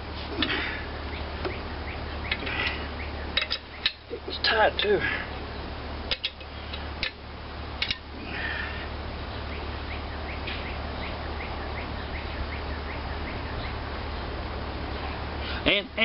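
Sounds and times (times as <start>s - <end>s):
steady hiss: 0.0s - 16.0s
metal parts clinking: 3.4s - 4.0s.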